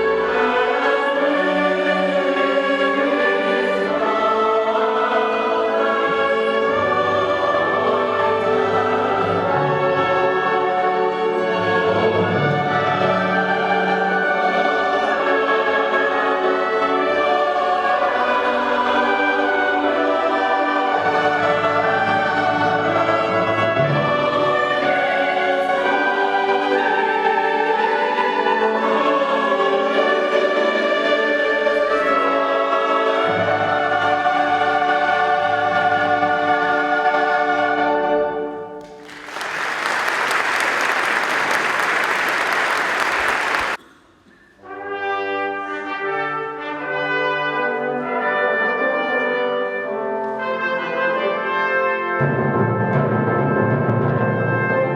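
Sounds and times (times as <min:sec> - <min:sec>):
choir with orchestra: 0:00.0 - 0:43.8, 0:44.6 - 0:54.9
audience applauding: 0:38.8 - 0:43.8.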